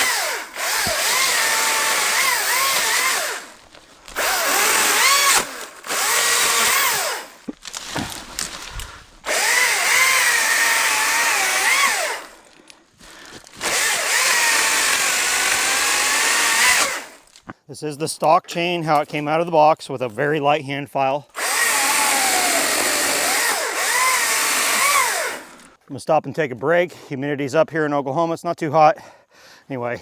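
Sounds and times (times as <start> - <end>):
cordless chainsaw cutting wood: 0.0 - 17.4, 21.3 - 25.8.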